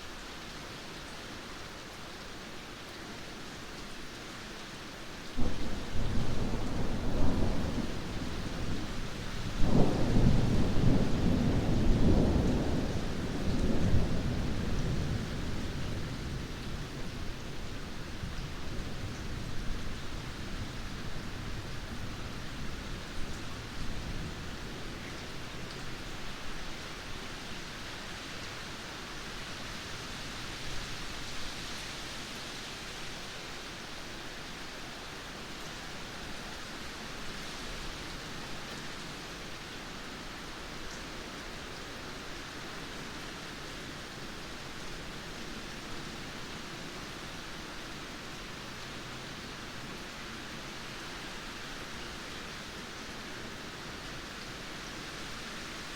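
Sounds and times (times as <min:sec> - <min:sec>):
steady rain hiss: 0:00.0 - 0:55.9
low thunder rumble: 0:05.4 - 0:17.0.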